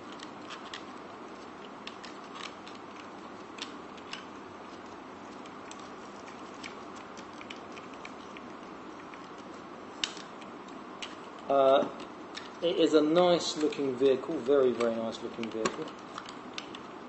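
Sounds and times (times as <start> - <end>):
steady background hiss: 0.0 - 17.0
plastic toy parts clicking: 0.1 - 0.9, 1.8 - 4.3, 14.7 - 16.8.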